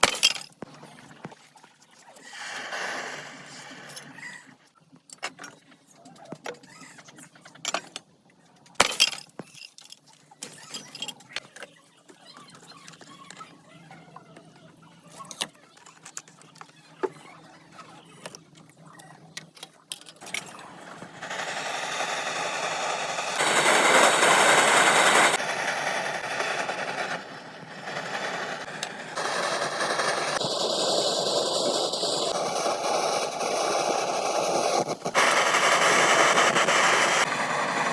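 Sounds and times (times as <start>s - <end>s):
glass tube clinking and cracking: 0.0s - 0.6s
small machine whirring: 10.4s - 37.9s.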